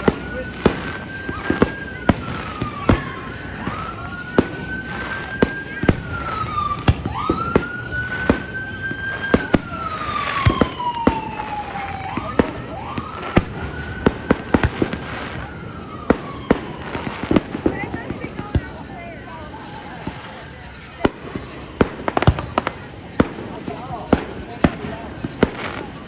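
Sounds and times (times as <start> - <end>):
fireworks banging: 0.0 - 26.0
siren wailing: 0.0 - 26.0.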